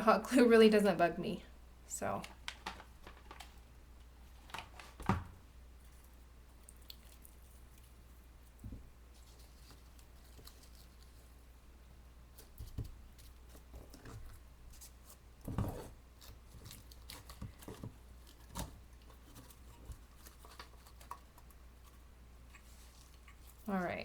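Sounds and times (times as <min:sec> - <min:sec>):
low steady hum: 0:00.0 - 0:24.0
paper rustling: 0:02.2 - 0:03.6, 0:12.3 - 0:23.7.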